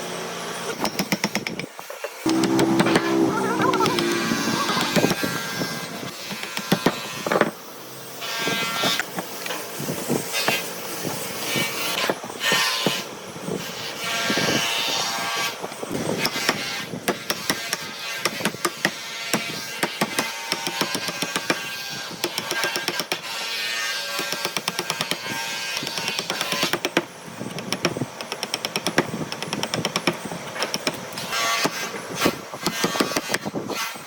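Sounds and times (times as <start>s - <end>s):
wood scraping or rasping: 2.3s - 7.5s.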